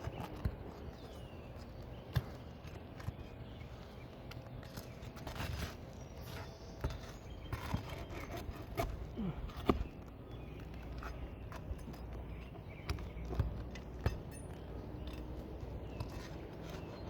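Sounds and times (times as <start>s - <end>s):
hand tool scraping roof shingles: 4.6s - 10.1s.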